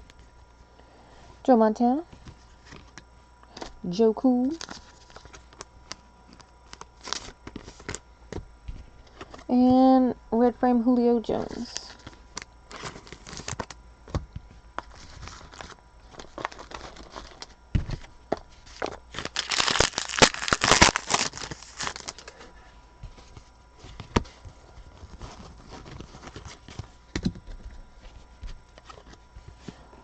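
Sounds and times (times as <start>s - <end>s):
wrapper crinkling and tearing: 4.5s - 8.0s, 11.6s - 13.8s, 14.8s - 17.6s, 18.7s - 22.4s.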